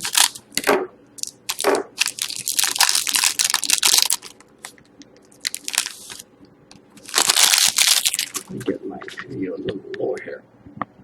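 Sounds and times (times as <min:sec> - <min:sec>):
plastic wrapping crinkling: 0:00.0 - 0:00.4, 0:01.2 - 0:06.2, 0:07.0 - 0:08.6.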